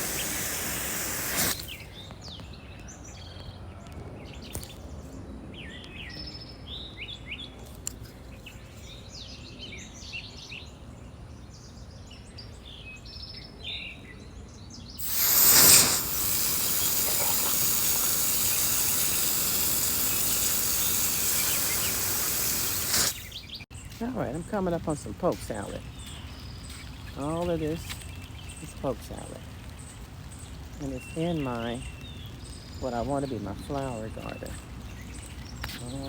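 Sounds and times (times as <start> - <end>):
loud steady hiss: 0.0 - 2.1, 15.0 - 36.0
small birds chirping: 0.0 - 36.0.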